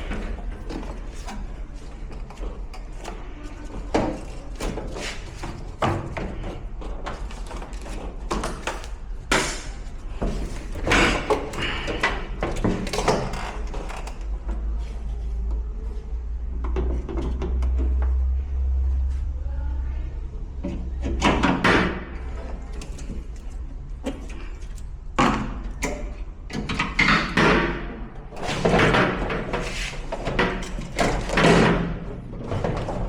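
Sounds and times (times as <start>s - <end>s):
knocks and bangs of metal parts: 20.7s - 33.0s.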